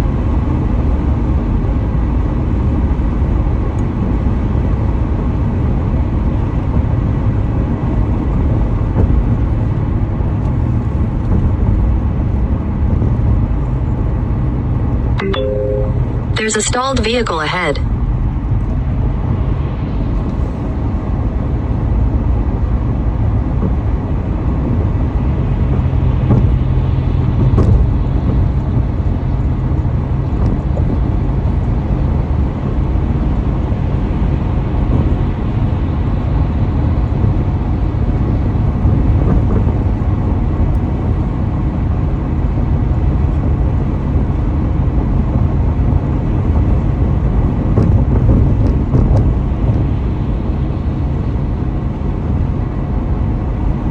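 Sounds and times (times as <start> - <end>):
car driving at highway speed: 18.1 - 53.9.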